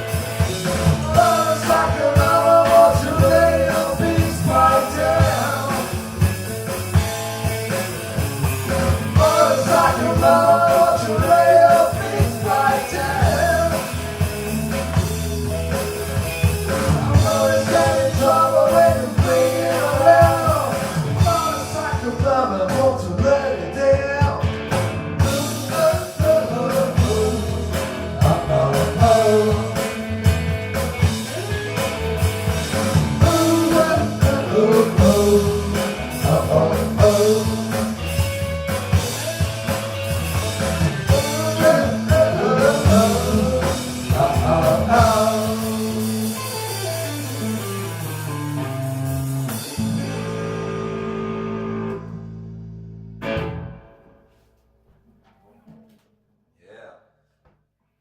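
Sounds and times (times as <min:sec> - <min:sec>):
drum kit: 0:00.0 - 0:52.4
rock band playing live: 0:00.0 - 0:54.1
held guitar chord ringing: 0:46.5 - 0:54.1.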